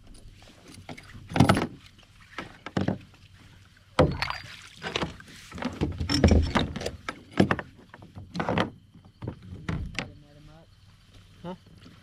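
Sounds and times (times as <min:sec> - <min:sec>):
water splashing: 0:01.0 - 0:05.8
paddle knocking against hull: 0:01.3 - 0:03.1, 0:03.9 - 0:10.2.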